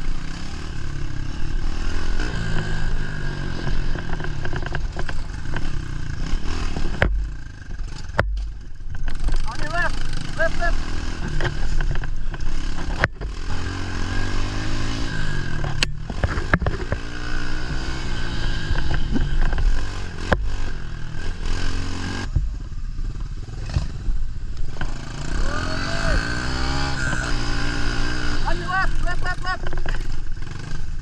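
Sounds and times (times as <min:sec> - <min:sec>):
pit bike engine revving: 0:00.0 - 0:31.0
sharp clatters and knocks: 0:03.6 - 0:09.6, 0:15.6 - 0:17.2.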